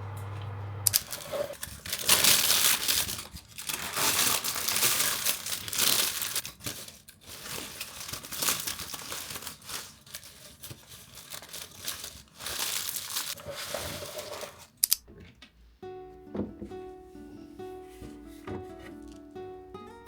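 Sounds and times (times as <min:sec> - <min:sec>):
packaging crinkling: 0:00.9 - 0:15.0.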